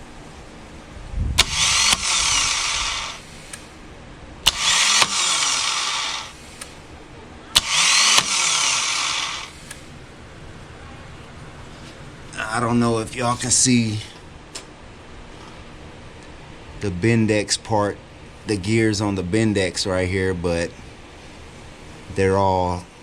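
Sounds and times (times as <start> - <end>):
starter motor click: 1.4 - 3.7, 4.4 - 6.8, 7.6 - 9.9
starter motor whirring: 1.4 - 3.7, 4.4 - 6.8, 7.6 - 9.9.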